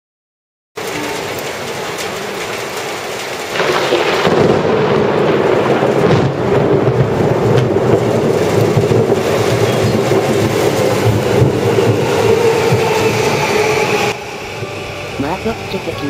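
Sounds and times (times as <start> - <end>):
electric train passing: 0.8 - 3.9, 8.0 - 16.0
heavy rain falling: 0.8 - 16.0
train wheels running over rails: 6.9 - 15.6.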